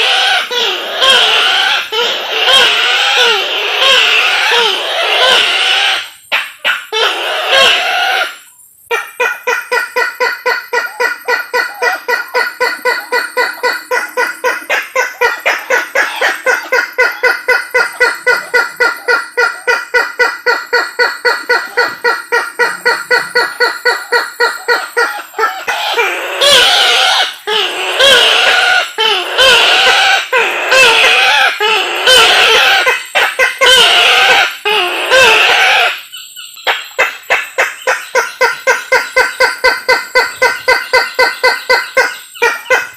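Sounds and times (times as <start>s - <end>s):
bird wavering calls: 0.0s - 42.9s
bird calling repeated notes: 8.9s - 42.9s.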